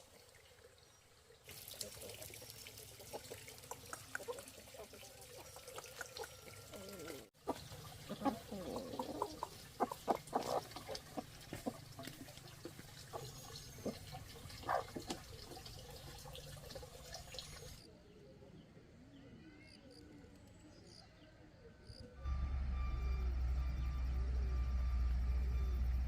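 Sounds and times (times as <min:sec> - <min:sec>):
water splashing and dripping: 0:00.0 - 0:17.9.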